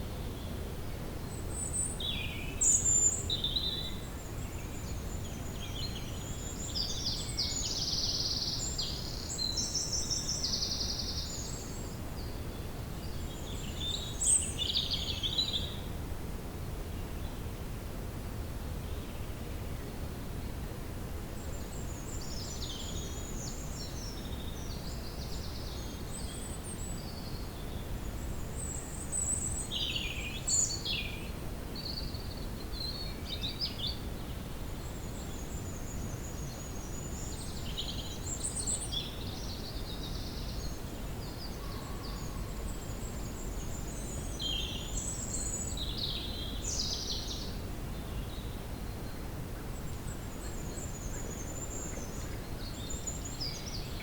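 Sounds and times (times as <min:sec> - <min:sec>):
songbirds chirping and trilling: 0:21.5 - 0:54.0.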